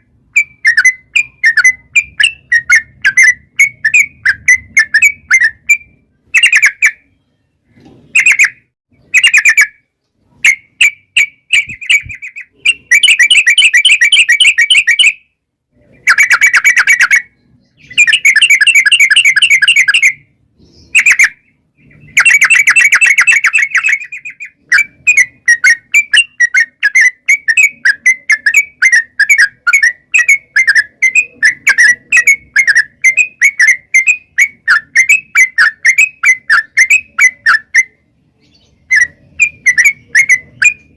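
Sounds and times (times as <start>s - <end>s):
bird singing rapid chattering notes: 0.0s - 40.9s.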